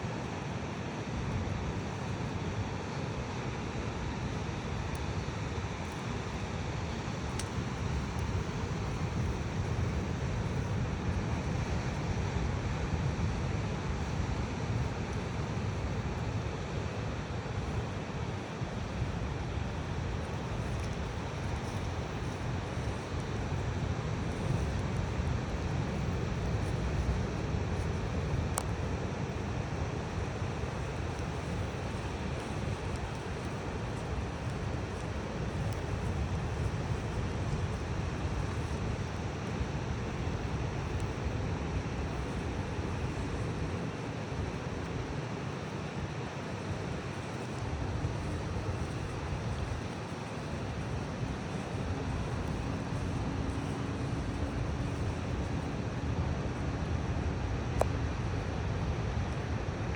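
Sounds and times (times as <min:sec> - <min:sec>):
faint click: 0:57.8 - 0:58.0.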